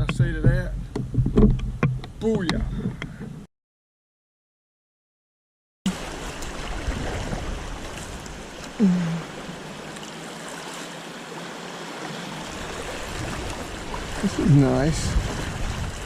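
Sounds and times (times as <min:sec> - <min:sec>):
river water rushing: 0:05.9 - 0:16.0.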